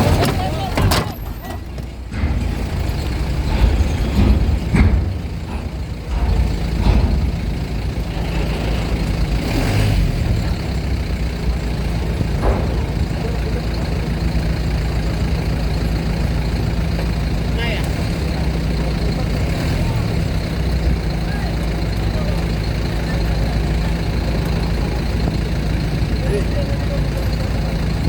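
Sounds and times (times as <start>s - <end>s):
diesel trucks and buses rumbling: 0.0s - 28.0s
short knocks: 11.6s - 15.2s.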